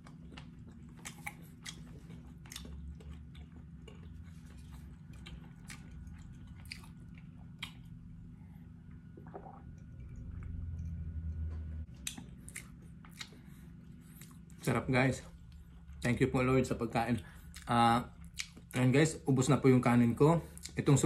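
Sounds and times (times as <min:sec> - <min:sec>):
person chewing: 0:00.0 - 0:08.2, 0:09.2 - 0:14.6, 0:17.3 - 0:18.8
person gulping a drink: 0:09.0 - 0:10.5.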